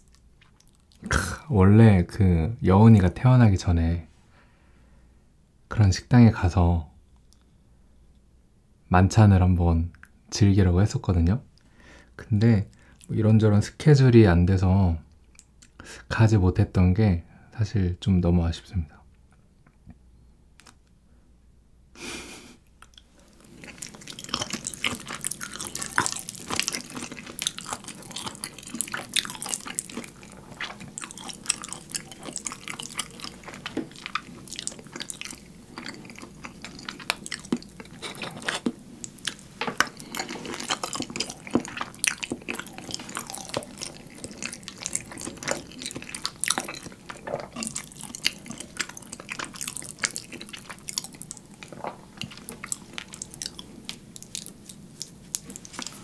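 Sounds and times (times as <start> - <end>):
close-miked wet chewing: 0.0 - 1.2, 22.8 - 56.0.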